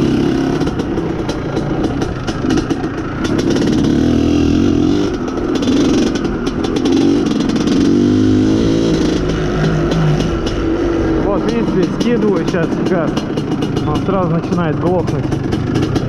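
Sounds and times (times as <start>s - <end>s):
two-stroke motorcycle engine revving: 0.0s - 16.0s.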